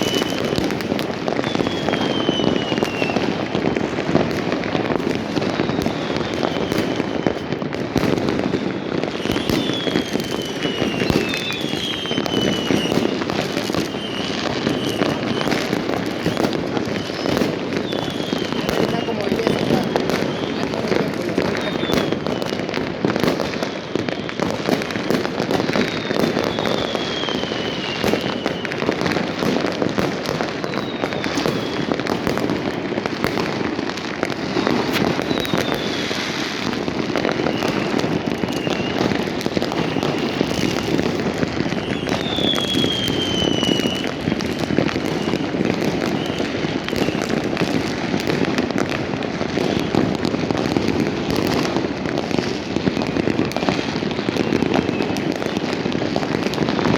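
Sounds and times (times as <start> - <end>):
firework whistles falling: 0.0 - 56.9
fireworks crackling bangs: 0.0 - 56.9.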